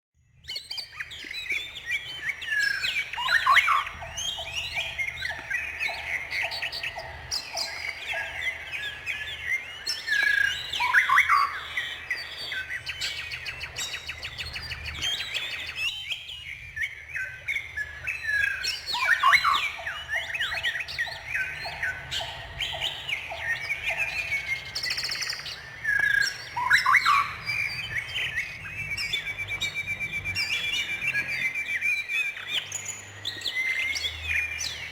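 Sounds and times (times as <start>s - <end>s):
songbirds chirping and trilling: 0.2s - 34.9s.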